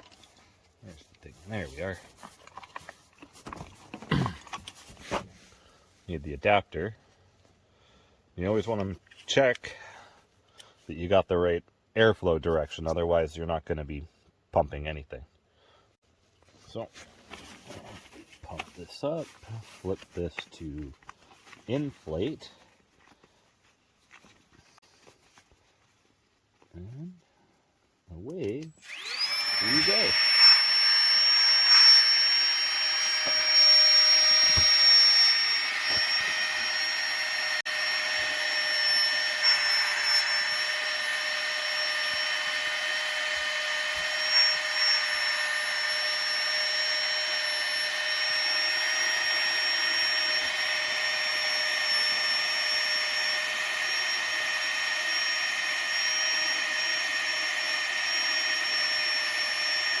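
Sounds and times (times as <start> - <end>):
air pump motor whine: 28.8 - 60.0.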